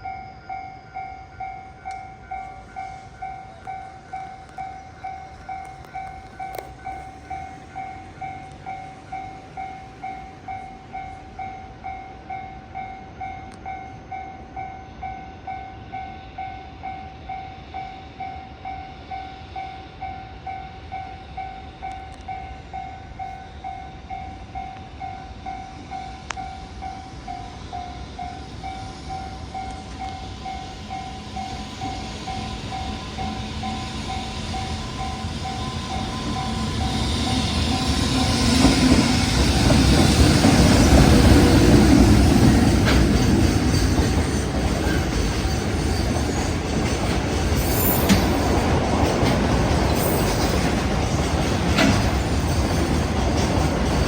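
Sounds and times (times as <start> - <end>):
train rumble: 0.0 - 54.0.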